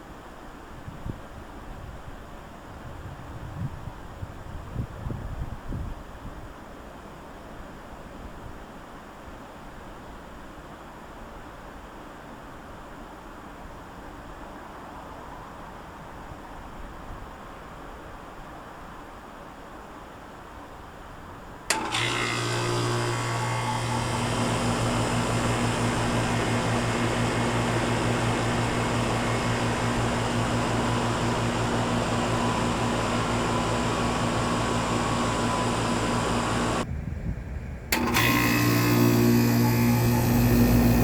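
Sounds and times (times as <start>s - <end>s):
air conditioner compressor hum: 21.7s - 36.9s, 38.0s - 41.0s
fan air rushing: 21.7s - 37.0s, 37.9s - 41.0s.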